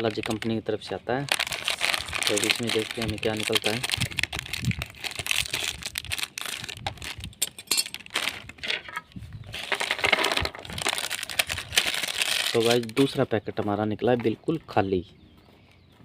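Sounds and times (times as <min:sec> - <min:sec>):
snacks rattling: 0:00.0 - 0:00.6, 0:01.2 - 0:08.8, 0:09.6 - 0:13.2
plastic snack packet crinkling: 0:00.0 - 0:08.6, 0:09.6 - 0:13.2.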